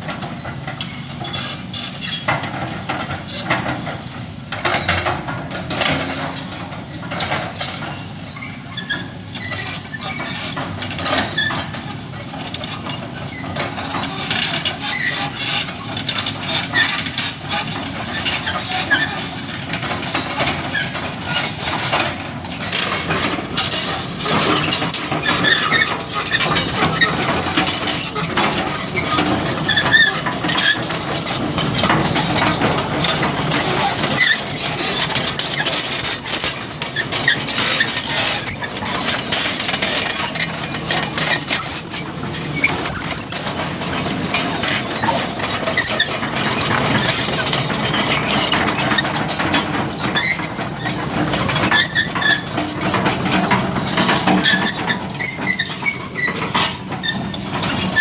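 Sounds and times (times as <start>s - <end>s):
excavator engine running: 0.0s - 58.0s
short high squeals: 8.0s - 11.8s, 16.7s - 30.9s
metallic clanks and knocks: 9.2s - 58.0s.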